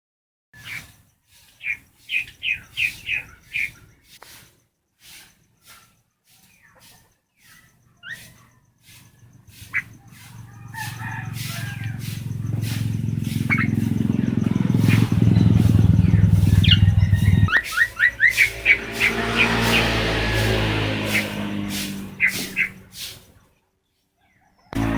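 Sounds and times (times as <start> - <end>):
bird chirping: 0.6 - 24.9
low rumble: 12.3 - 17.5.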